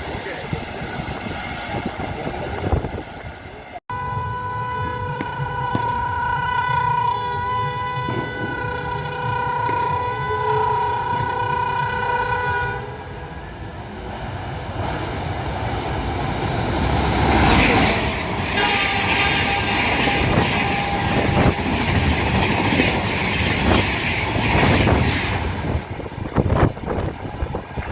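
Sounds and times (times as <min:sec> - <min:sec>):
locomotive horn blast: 0:03.9 - 0:13.3, 0:18.5 - 0:21.8.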